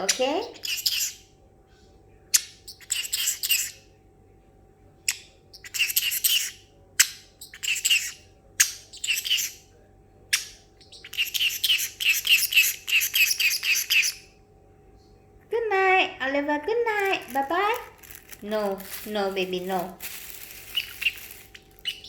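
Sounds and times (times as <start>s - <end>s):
bird buzzy chirping: 0.0s - 1.3s, 2.4s - 3.9s, 5.0s - 9.7s, 10.3s - 14.4s, 17.0s - 22.0s.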